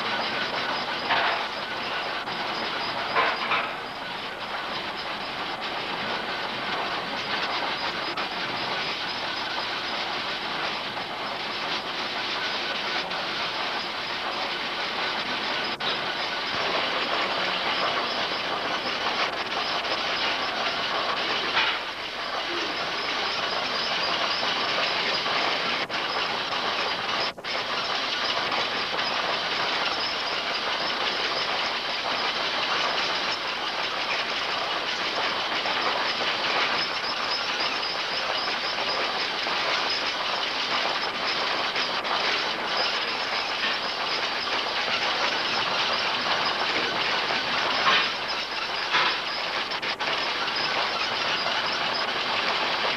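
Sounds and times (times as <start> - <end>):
steam engines running: 0.0 - 52.9.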